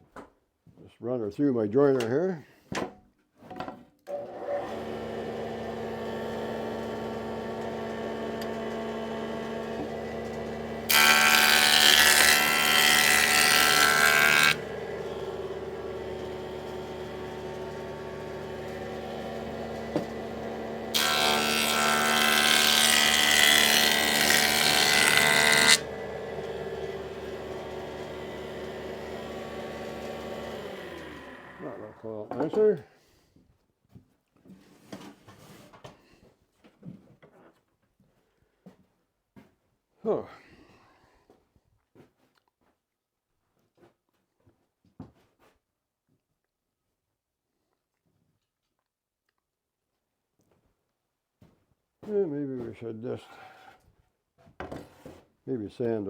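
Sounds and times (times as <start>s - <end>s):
jointer running: 4.1s - 31.8s
board cutting noise: 4.1s - 32.1s.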